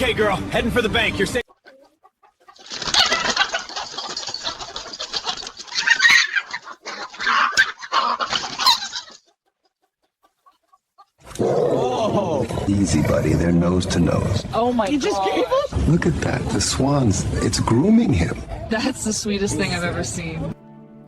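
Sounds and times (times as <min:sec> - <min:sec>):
chickens clucking and squawking: 0:01.1 - 0:11.4, 0:14.1 - 0:20.5.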